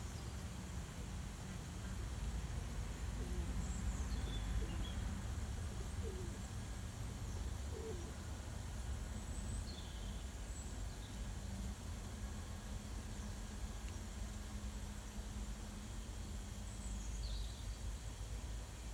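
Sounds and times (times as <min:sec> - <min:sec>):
small birds chirping: 0:03.6 - 0:05.1, 0:09.3 - 0:11.8, 0:16.5 - 0:17.9.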